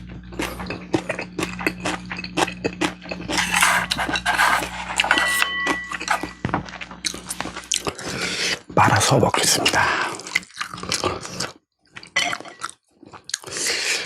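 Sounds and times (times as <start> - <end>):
tableware handling: 3.3 - 6.6
chewing with wet mouth clicks: 10.1 - 13.7.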